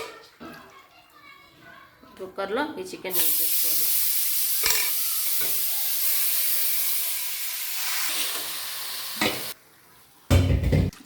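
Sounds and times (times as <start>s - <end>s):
chicken sizzling in oil: 3.1s - 9.6s.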